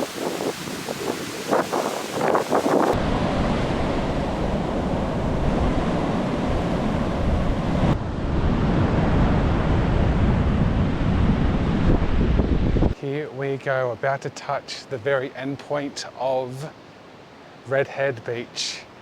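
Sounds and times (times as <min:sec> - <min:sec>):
wind buffeting microphone: 0:00.0 - 0:13.0
ocean surf: 0:00.0 - 0:19.0.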